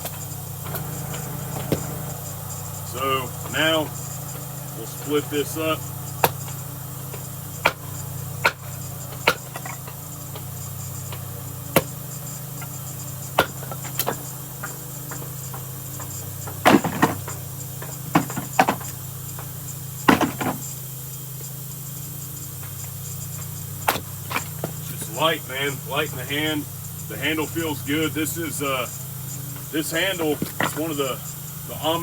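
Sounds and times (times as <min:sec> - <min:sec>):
axe splitting wood: 0:00.0 - 0:02.2, 0:07.6 - 0:12.0, 0:13.4 - 0:19.5, 0:20.1 - 0:20.6, 0:23.8 - 0:24.8
steady low hum: 0:00.0 - 0:32.0.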